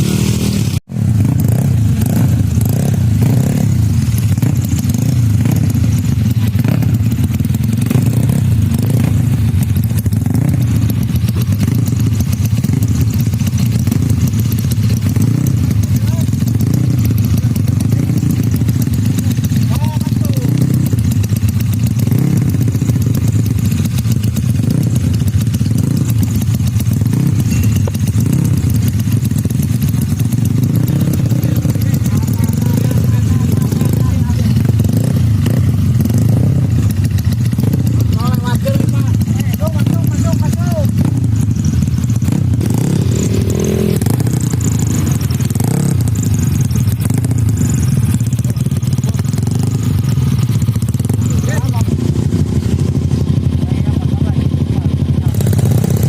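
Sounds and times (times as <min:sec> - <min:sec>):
scooter engine at low revs: 0:00.0 - 0:56.0.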